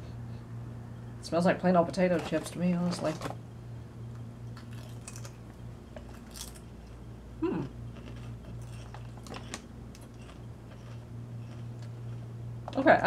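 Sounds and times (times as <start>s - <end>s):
potato chips being chewed: 4.4s - 7.0s, 7.8s - 12.3s
falling vocal hum: 7.4s - 7.8s.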